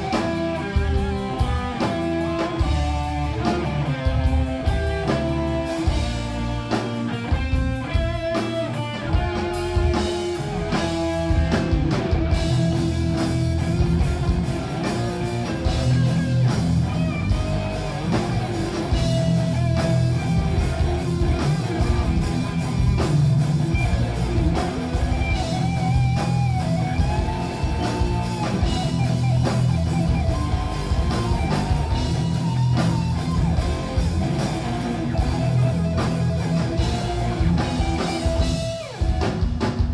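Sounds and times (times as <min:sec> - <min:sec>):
metal band playing live: 0:00.0 - 0:39.9
picked electric guitar line: 0:00.0 - 0:39.9.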